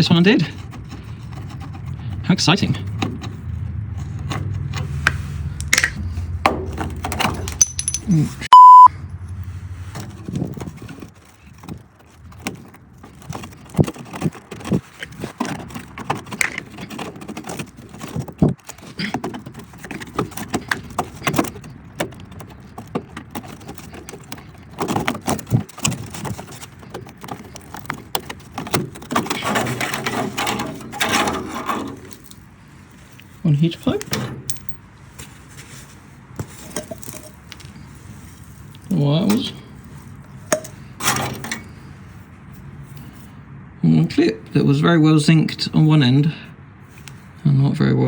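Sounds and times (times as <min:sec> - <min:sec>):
hand tools clinking on metal: 0:07.2 - 0:08.5, 0:33.8 - 0:34.8
censor bleep: 0:08.5 - 0:08.9.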